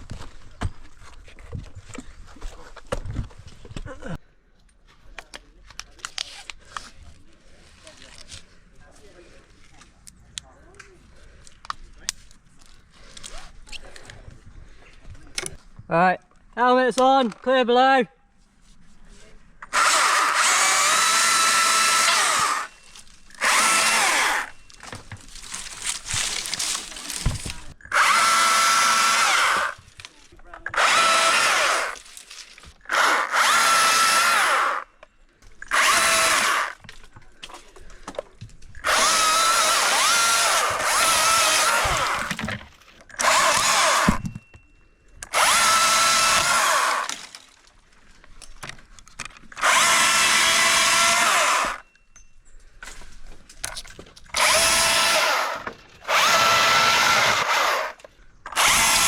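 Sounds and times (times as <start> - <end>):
electric chainsaw cutting branches: 19.7 - 24.6, 25.4 - 29.8, 30.7 - 32.0, 32.9 - 34.9, 35.7 - 36.8, 38.8 - 42.4, 43.2 - 44.2, 45.3 - 47.4, 49.6 - 51.8, 54.3 - 59.0.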